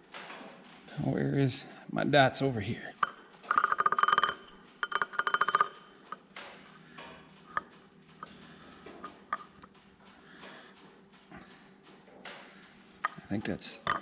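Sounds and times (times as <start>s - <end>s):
rapid metallic clicking: 0.0s - 14.0s
light metal clinks: 2.9s - 14.0s.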